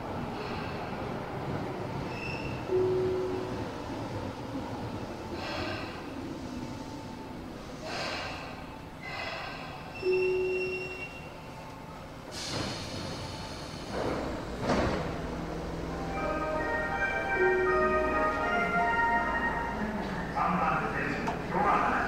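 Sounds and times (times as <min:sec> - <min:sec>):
rail and platform noises: 0:00.0 - 0:22.0
hiss of air: 0:12.3 - 0:14.2
chiming station music: 0:16.0 - 0:20.0.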